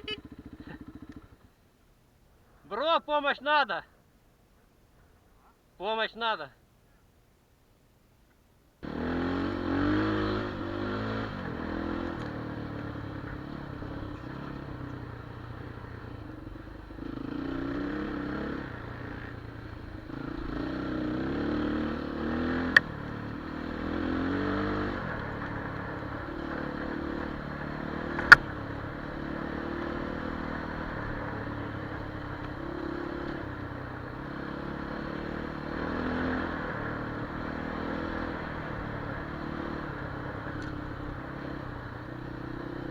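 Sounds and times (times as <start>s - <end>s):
motorcycle engine revving: 0.0s - 1.5s, 8.8s - 42.9s
sharp clicks: 28.1s - 28.5s.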